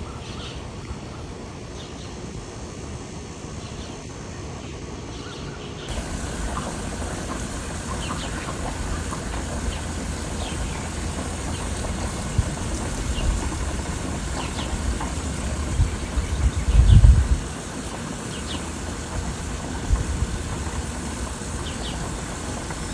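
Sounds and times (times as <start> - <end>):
small birds chirping: 5.3 - 22.9
low rumble and hiss: 5.9 - 22.9.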